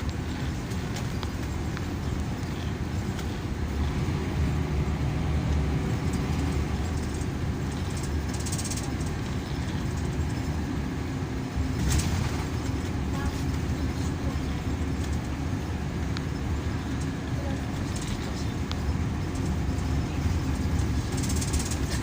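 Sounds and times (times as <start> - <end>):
coach engine rumble: 0.0 - 22.0
short rattle: 19.2 - 22.0.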